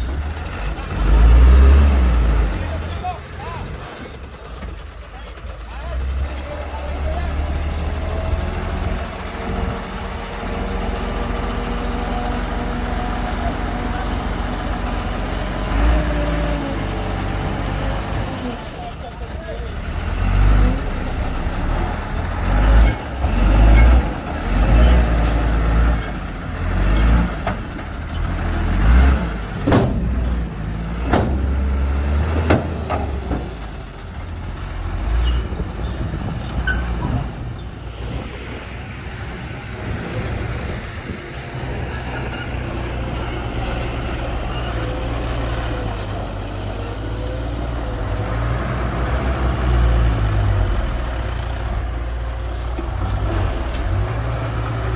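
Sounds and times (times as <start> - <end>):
heavy diesel engine surging: 0.0 - 54.9
sharp knocks: 29.6 - 30.2, 31.0 - 31.6.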